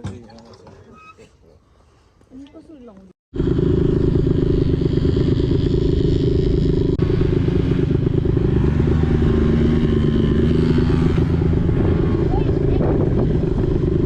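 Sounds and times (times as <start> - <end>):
vehicle engine running: 3.3 - 14.0.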